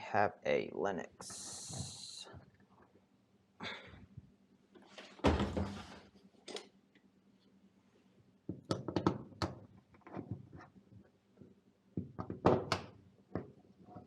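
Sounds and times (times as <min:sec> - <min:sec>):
heavy thunk: 0:05.2 - 0:05.8.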